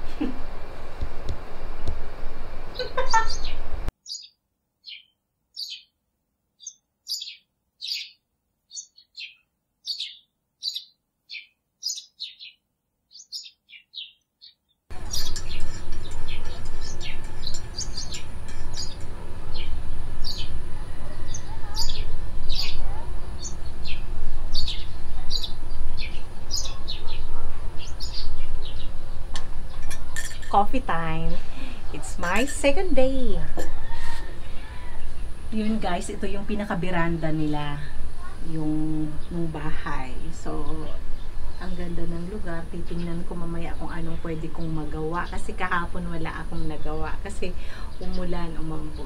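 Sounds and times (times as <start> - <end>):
small birds chirping: 2.7 - 6.0, 6.6 - 49.0
steady low background noise: 14.9 - 49.0.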